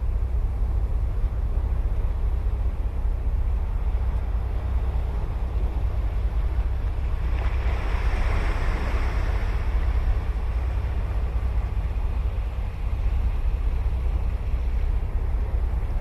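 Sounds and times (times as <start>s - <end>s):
ocean surf breaking: 6.6s - 13.5s.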